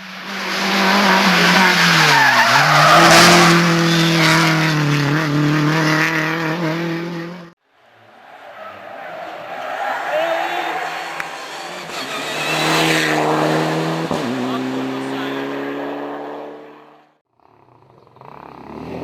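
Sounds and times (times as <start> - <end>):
faint second engine: 10.6 - 19.0
race car engine running hard: 10.7 - 17.0.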